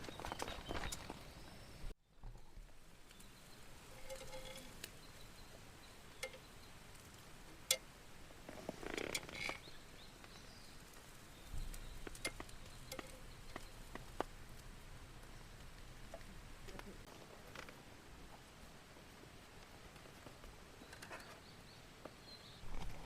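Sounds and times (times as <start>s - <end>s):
small clicks and taps: 11.7s - 14.7s.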